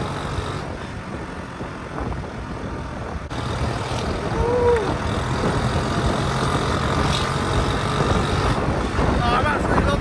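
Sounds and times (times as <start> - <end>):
motorcycle engine running: 0.0 - 0.8, 3.3 - 10.0
wind noise on microphone: 0.0 - 10.0.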